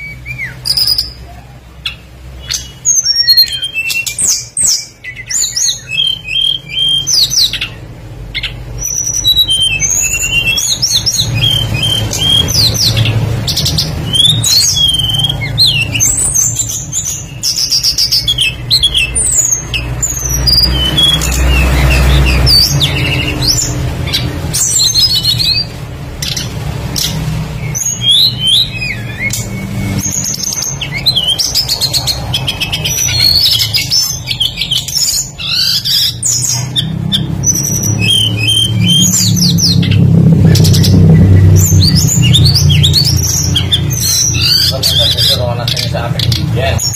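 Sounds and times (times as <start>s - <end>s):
flycatcher singing: 0.0s - 46.9s
low rumble: 36.9s - 44.6s.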